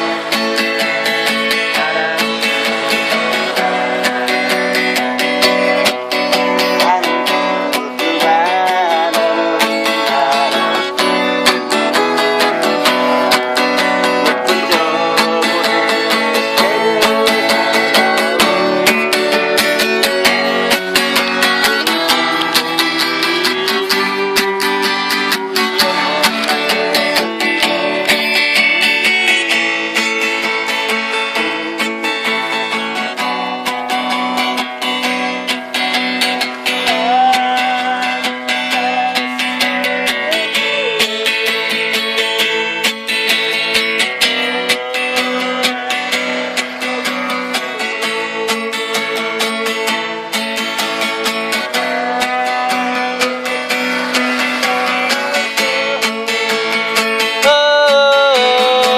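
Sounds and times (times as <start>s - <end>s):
gliding melody line: 0.0s - 41.0s
acoustic guitar strumming: 0.0s - 58.9s.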